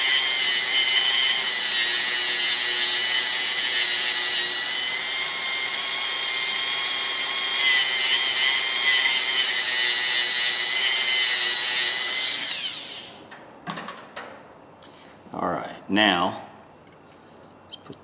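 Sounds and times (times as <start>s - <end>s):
rotary tool high-pitched whine: 0.0s - 13.2s.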